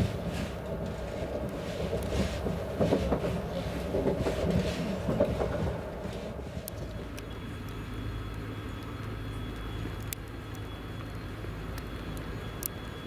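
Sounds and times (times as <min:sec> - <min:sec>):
train wheels rumbling and clacking: 0:00.0 - 0:07.3
steady train hum: 0:00.0 - 0:13.0.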